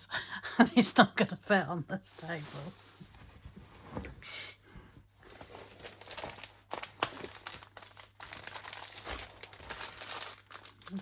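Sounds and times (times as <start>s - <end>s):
plastic packaging crinkling: 5.3s - 11.0s.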